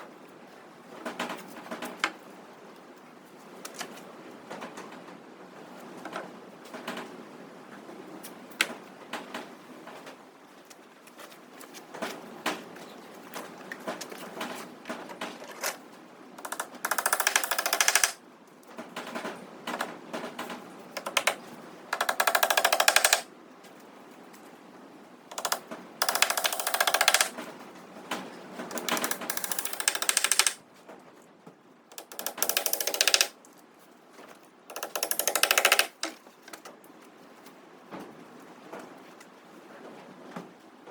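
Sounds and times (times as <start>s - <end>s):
knocks and clicks: 16.4s - 18.2s, 21.0s - 23.3s, 25.3s - 27.4s, 28.7s - 30.6s, 31.9s - 33.3s, 34.7s - 36.2s
power tool rattling: 16.4s - 18.2s, 22.0s - 23.3s, 25.3s - 27.3s, 28.7s - 30.6s, 31.9s - 33.3s, 34.7s - 36.0s.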